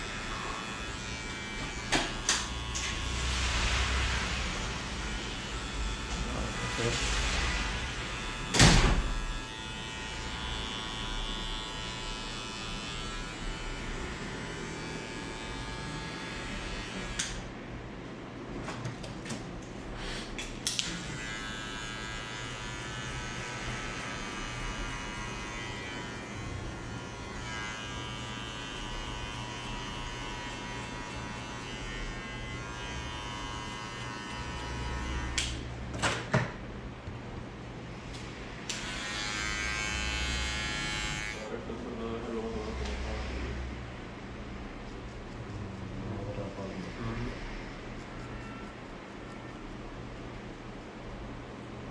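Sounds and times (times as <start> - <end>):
electric hair clippers buzzing: 0.0 - 3.3, 5.0 - 7.0, 7.7 - 17.5, 20.7 - 35.7, 38.6 - 41.5.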